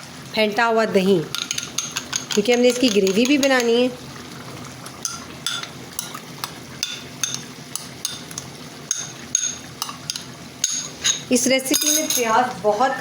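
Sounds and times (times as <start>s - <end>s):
chicken sizzling in frying pan: 0.0s - 11.7s
spoon scraping and clinking pan: 1.3s - 3.8s, 5.0s - 6.2s, 6.8s - 12.4s.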